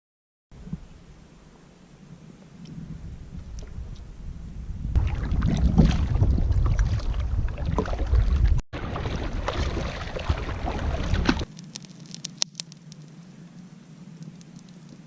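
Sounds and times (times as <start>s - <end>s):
wind rumbling on microphone: 0.5s - 11.6s
water sloshing around a kayak: 5.0s - 11.5s
small clicks: 11.5s - 15.0s.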